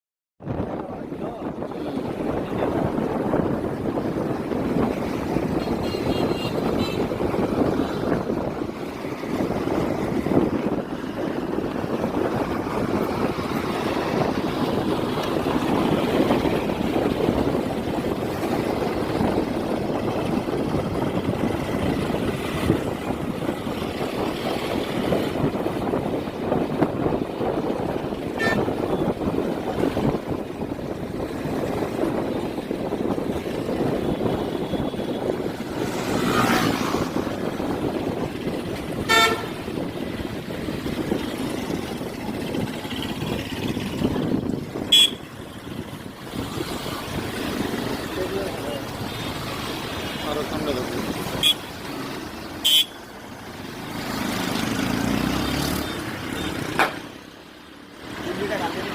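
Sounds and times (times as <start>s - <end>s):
road and wind noise: 0.4s - 58.9s
motorcycle engine running: 0.9s - 57.2s
vehicle horn toot: 5.6s - 7.1s, 28.4s - 28.7s, 39.0s - 39.6s, 44.9s - 45.3s, 51.4s - 51.7s, 52.6s - 53.0s
higher-pitched horn beep: 39.1s - 39.6s, 44.9s - 45.2s, 52.6s - 53.0s.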